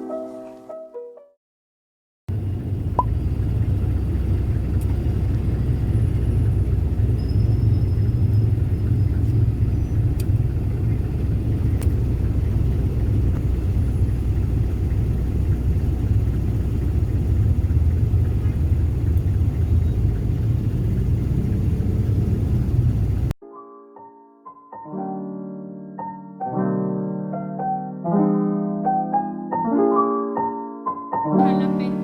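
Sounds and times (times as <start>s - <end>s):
low vehicle rumble: 2.3s - 23.4s.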